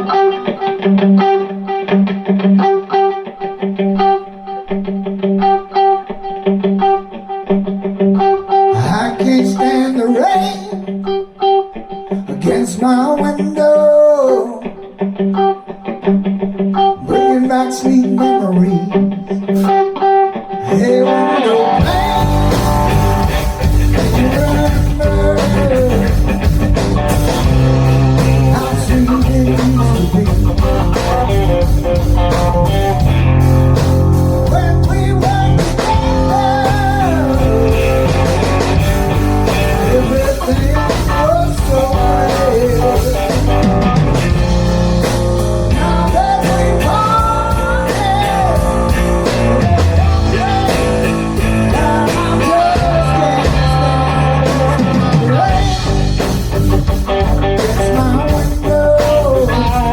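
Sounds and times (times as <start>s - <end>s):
blues band playing: 0.0s - 59.9s
guitar: 0.0s - 59.9s.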